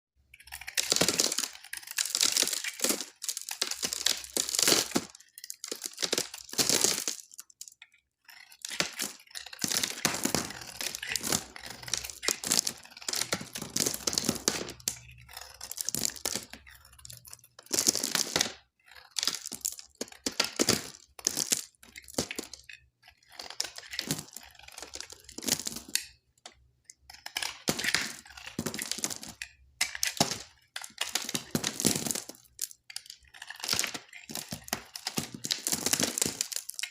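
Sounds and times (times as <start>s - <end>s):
knife cutting dry soap: 0.3s - 36.9s.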